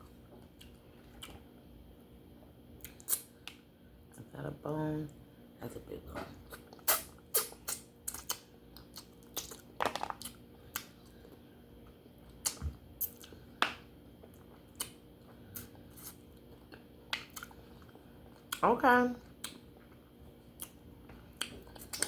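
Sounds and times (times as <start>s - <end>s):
person chewing: 0.4s - 1.4s, 2.8s - 3.6s, 6.4s - 13.5s, 14.2s - 18.6s, 19.2s - 22.0s.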